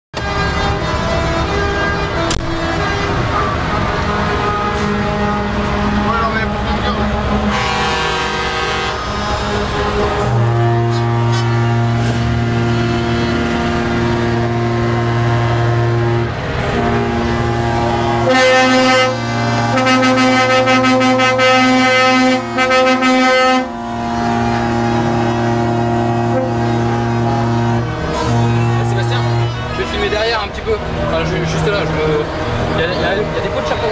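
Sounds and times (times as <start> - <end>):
higher-pitched horn blasts: 0.2 - 30.7
truck air horns chords: 0.2 - 33.9.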